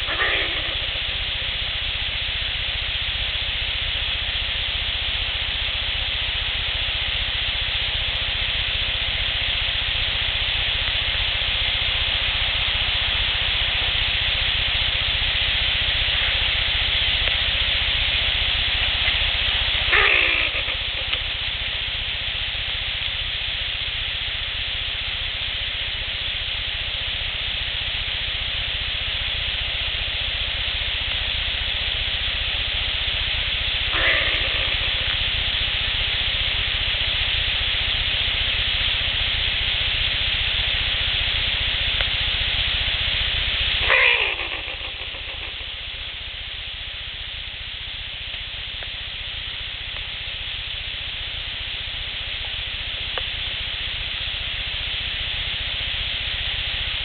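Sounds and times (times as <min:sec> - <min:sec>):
recorder hiss: 0:00.0 - 0:57.0
short cries falling in pitch: 0:19.8 - 0:21.2, 0:33.9 - 0:35.1, 0:43.8 - 0:45.8.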